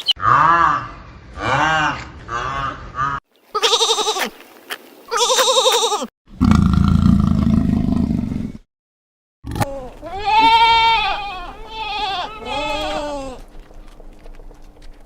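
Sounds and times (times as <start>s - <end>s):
goat bleating: 3.5s - 4.4s, 5.1s - 6.1s, 9.6s - 13.5s.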